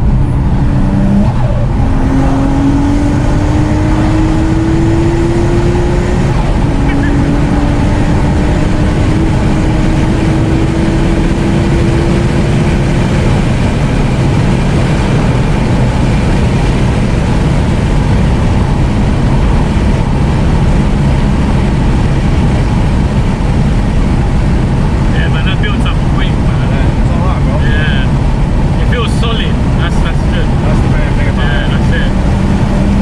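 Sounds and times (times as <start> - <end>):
car engine under load: 0.0 - 33.0
road noise: 0.0 - 33.0.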